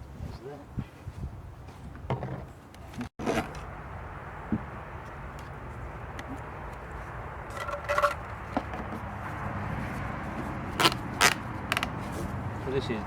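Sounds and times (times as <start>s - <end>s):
handling noises: 0.4s - 13.0s
squeaky scrape: 10.8s - 12.4s.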